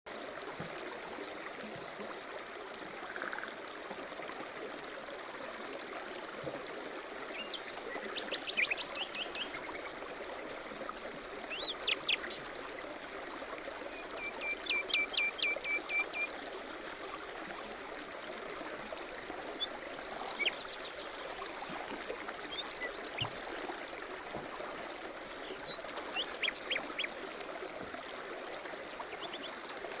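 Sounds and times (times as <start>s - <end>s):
songbirds calling and trilling: 6.7s - 17.5s, 19.2s - 24.1s, 24.9s - 30.0s.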